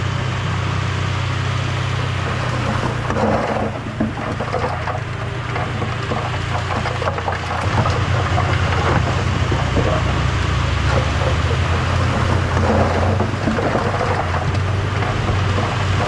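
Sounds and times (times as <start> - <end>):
bulldozer diesel engine: 0.0 - 16.0
dense crackling noise: 2.4 - 16.0.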